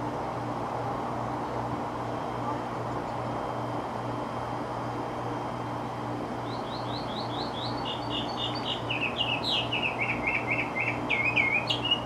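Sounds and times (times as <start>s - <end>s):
steady low hum: 0.0s - 12.0s
songbird chirping: 6.4s - 12.0s.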